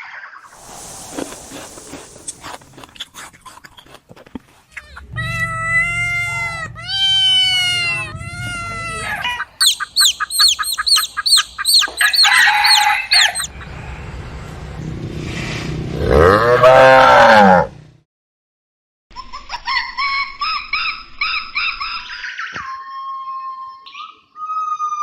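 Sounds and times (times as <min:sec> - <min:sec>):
rooster crowing: 0:12.0 - 0:13.5.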